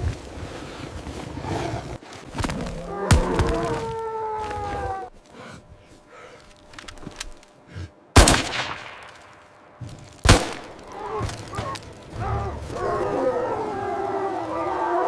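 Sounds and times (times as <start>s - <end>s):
rifle shots echoing: 8.2s - 9.5s, 10.2s - 10.9s.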